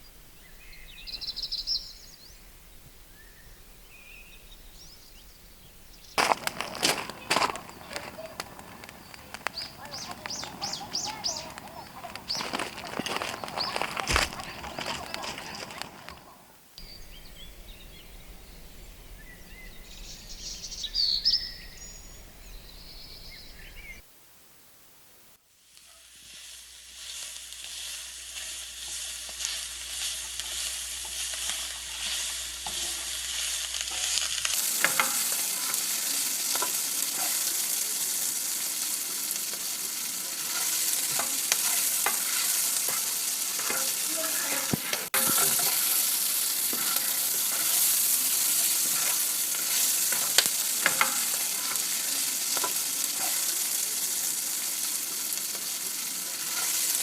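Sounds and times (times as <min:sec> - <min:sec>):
food sizzling in a pan: 0:03.0 - 0:24.0, 0:25.5 - 0:57.0
pops and crackles: 0:06.2 - 0:16.4, 0:28.9 - 0:35.9, 0:40.6 - 0:53.6.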